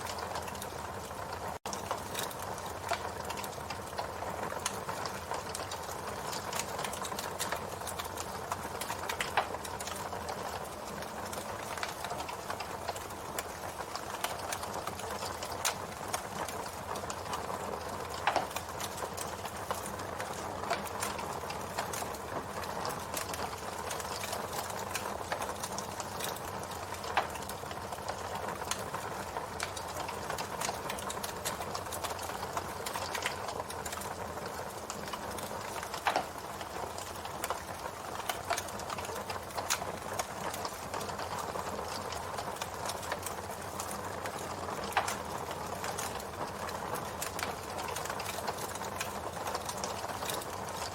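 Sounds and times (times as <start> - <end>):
campfire crackling: 0.0 - 50.9
wood popping: 34.8 - 37.6.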